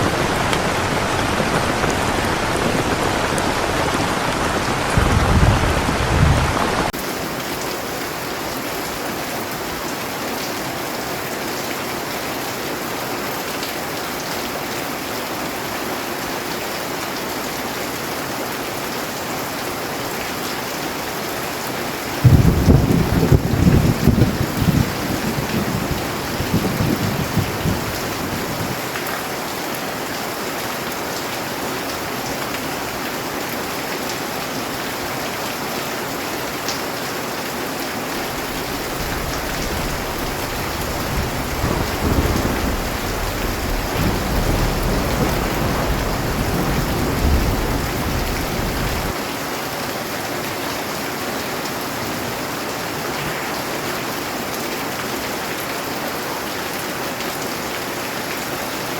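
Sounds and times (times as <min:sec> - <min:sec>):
thunder rumbling: 0:00.0 - 0:06.9, 0:22.2 - 0:28.8, 0:38.2 - 0:49.1
heavy rain hissing: 0:00.0 - 0:08.6, 0:22.2 - 0:28.8, 0:37.8 - 0:49.2.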